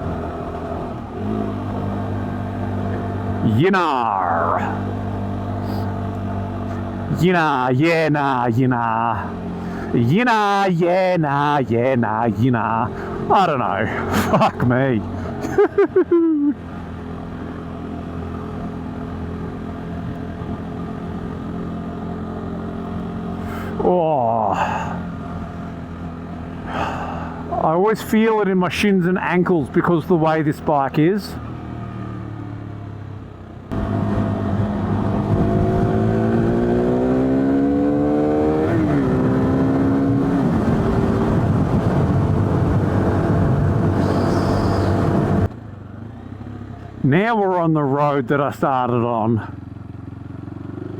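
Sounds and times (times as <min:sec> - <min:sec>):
motorcycle engine cruising: 0:00.0 - 0:50.9
wind noise on microphone: 0:34.2 - 0:36.3, 0:39.2 - 0:45.5.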